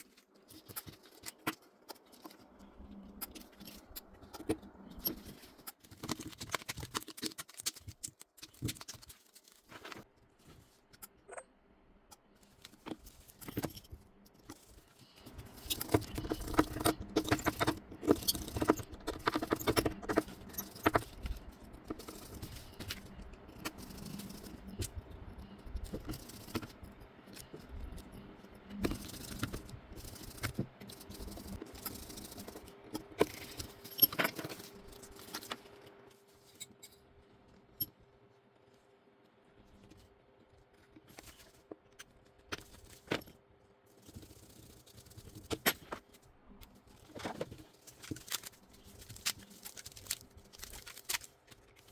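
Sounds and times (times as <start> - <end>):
small tools clicking and tapping: 0.0 - 9.6, 12.1 - 35.9
faint steady hum: 7.9 - 51.9
light metallic rattles and scrapes: 12.4 - 38.8, 39.7 - 51.9.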